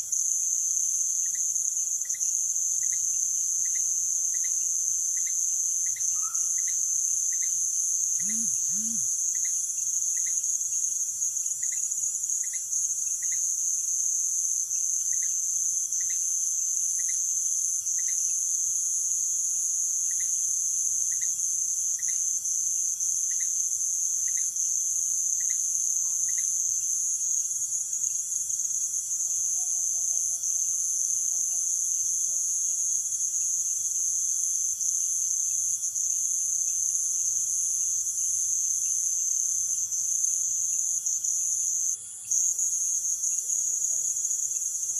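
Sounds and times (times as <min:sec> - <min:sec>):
insect chorus shrill: 0:00.2 - 0:44.9
faint low wavering calls: 0:06.0 - 0:06.8.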